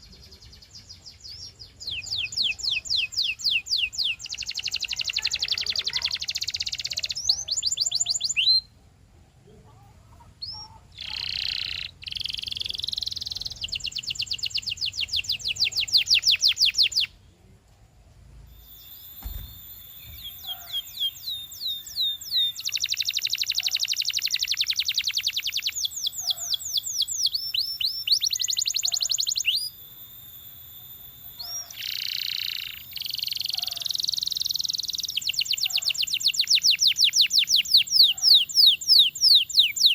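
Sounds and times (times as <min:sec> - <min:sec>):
canary singing trills: 0:00.0 - 0:08.8, 0:09.8 - 0:17.2, 0:18.5 - 0:39.9
low thump: 0:19.2 - 0:20.4.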